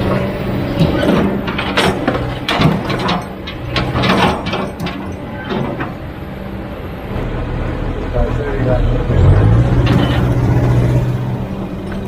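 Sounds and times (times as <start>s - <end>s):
metallic clanks and scrapes: 0.0s - 6.0s, 9.6s - 10.9s
excavator diesel engine running: 0.0s - 12.0s.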